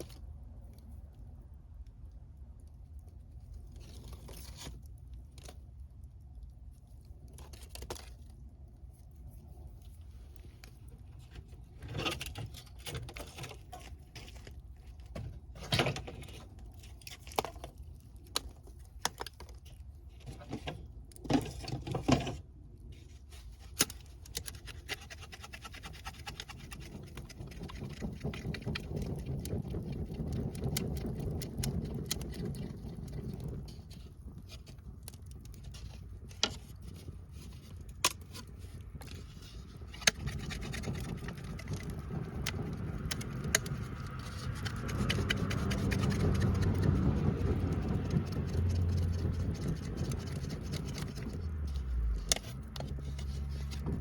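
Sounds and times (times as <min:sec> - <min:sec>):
wood fire crackling: 0:00.0 - 0:54.0
wood rustling: 0:03.4 - 0:54.0
low rumble: 0:27.6 - 0:54.0.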